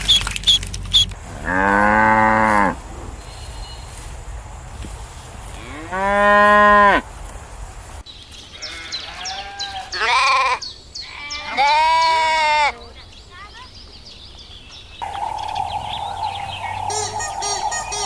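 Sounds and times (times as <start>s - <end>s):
sheep bleating: 8.6s - 10.6s.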